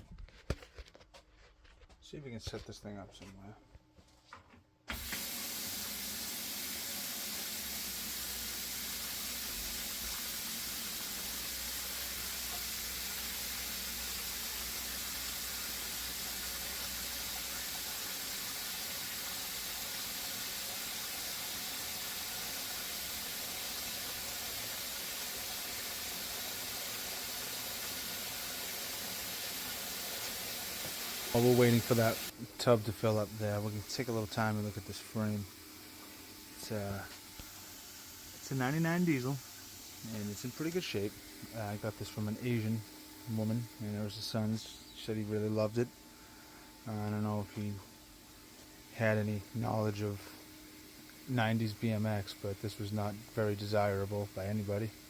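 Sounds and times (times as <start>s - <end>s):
water running into a tub: 4.9s - 44.2s.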